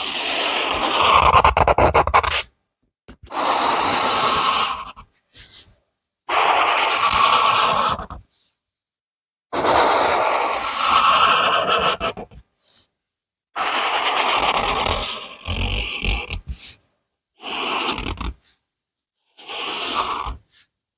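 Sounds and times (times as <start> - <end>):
drawing tool scraping on paper: 0.0 - 2.5, 3.2 - 5.6, 6.3 - 8.3, 9.6 - 12.4, 13.6 - 16.8, 17.4 - 18.6, 19.3 - 20.7.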